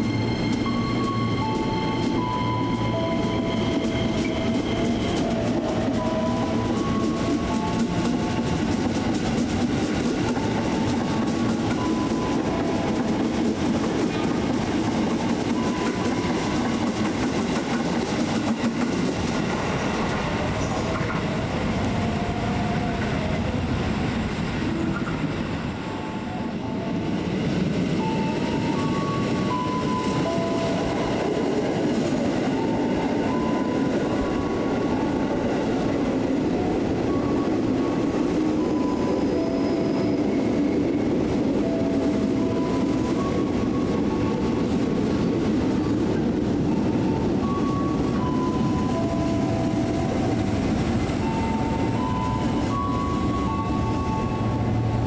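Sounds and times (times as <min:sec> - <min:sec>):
clickety-clack over rail joints: 0:00.0 - 0:21.9, 0:22.8 - 0:55.0
train wheels rumbling on rails: 0:00.0 - 0:55.0
train whining tones: 0:00.0 - 0:55.0.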